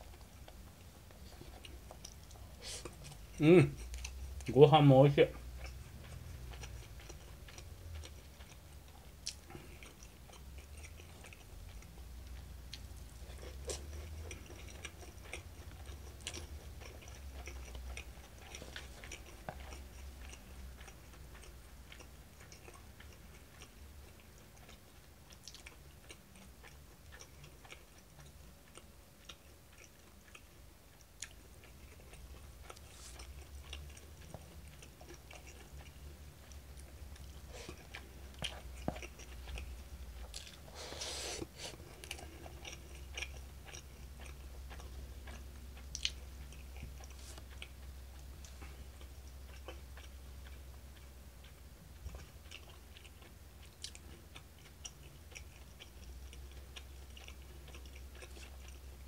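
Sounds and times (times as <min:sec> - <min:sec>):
person chewing food: 0:00.0 - 0:04.6, 0:05.2 - 0:59.0
low steady hum: 0:00.0 - 0:59.0.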